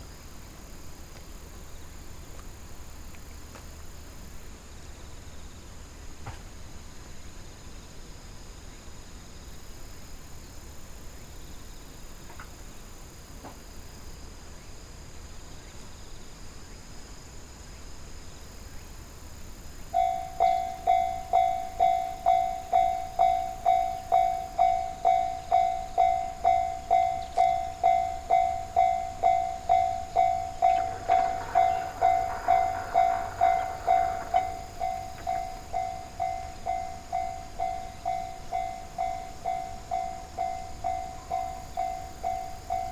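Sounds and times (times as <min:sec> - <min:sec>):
insects trilling: 0:18.4 - 0:42.9
level crossing bell ringing: 0:20.0 - 0:42.9
short rushing noise: 0:30.6 - 0:35.4.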